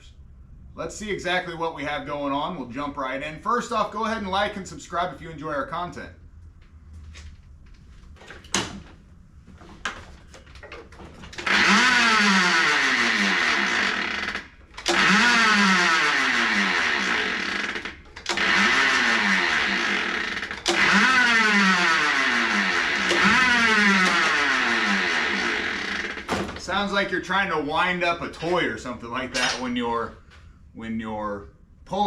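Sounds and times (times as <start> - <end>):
lawn mower recoil starter whirring: 9.8 - 26.7
engine spinning over: 10.2 - 26.7.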